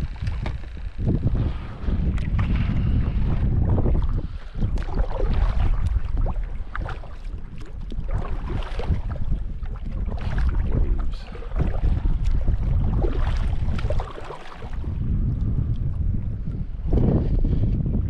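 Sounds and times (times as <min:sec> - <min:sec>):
wind buffeting microphone: 0:00.0 - 0:18.0
small water splashes: 0:02.1 - 0:15.0.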